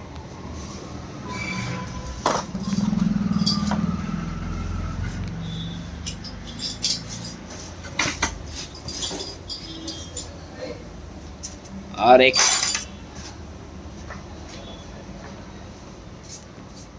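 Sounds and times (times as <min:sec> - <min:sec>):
small motorcycle engine running: 0:02.4 - 0:05.9.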